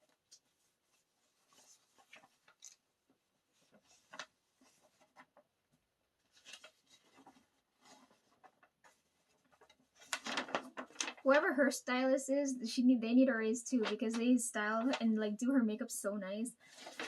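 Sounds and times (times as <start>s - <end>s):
paper and card rustling: 0.0s - 5.4s, 6.2s - 11.6s, 13.6s - 15.5s, 16.6s - 17.0s.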